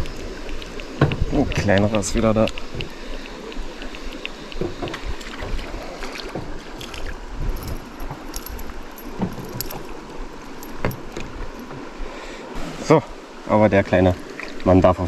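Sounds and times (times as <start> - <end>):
small knocks and clicks: 6.8 - 11.8.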